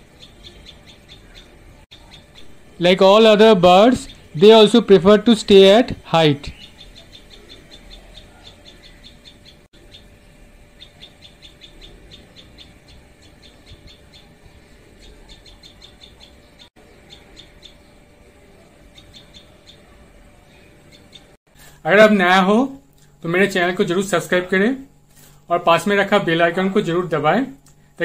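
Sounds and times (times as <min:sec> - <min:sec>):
small birds chirping: 0:00.0 - 0:21.8.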